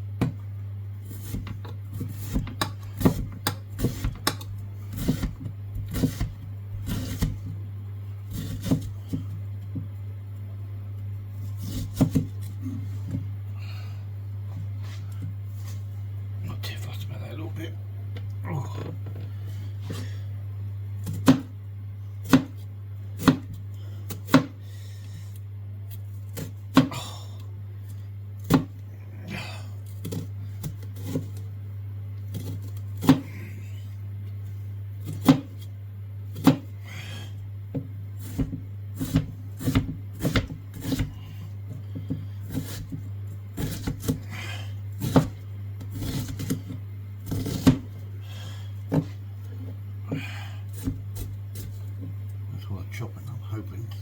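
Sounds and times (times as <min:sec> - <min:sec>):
steady low hum: 0:00.0 - 0:54.0
knife chopping on board: 0:01.1 - 0:07.5, 0:08.3 - 0:09.8, 0:11.6 - 0:12.4, 0:21.0 - 0:21.5, 0:22.2 - 0:22.6, 0:23.2 - 0:24.6, 0:26.4 - 0:27.0, 0:28.4 - 0:28.7, 0:32.3 - 0:33.4, 0:35.0 - 0:35.7, 0:36.3 - 0:36.7, 0:37.7 - 0:41.2, 0:42.0 - 0:44.3, 0:45.0 - 0:47.9, 0:50.1 - 0:52.2.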